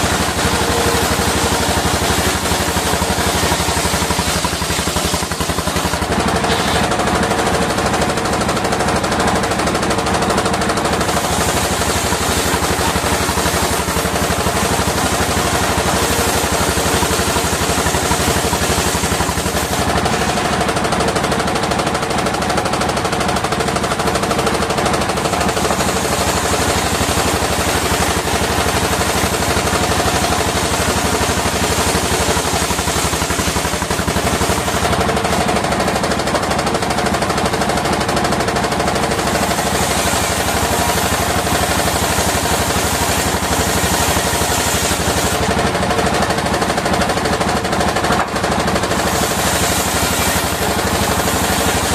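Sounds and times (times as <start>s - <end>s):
engine clattering: 0.0s - 51.9s
sawmill hum: 0.0s - 51.9s.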